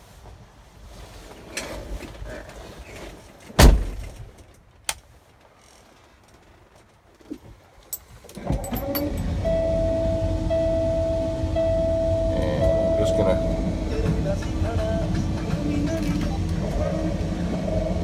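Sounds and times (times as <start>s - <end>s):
heavy thump in truck cab: 3.6s - 4.4s
steady electronic tone: 9.3s - 18.0s.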